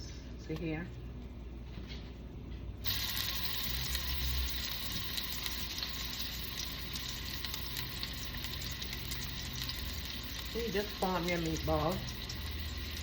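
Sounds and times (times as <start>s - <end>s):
meatballs sizzling in hot oil: 2.8s - 13.0s.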